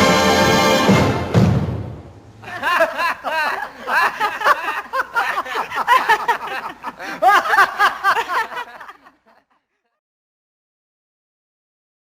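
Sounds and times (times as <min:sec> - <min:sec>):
people laughing: 0:02.4 - 0:10.0.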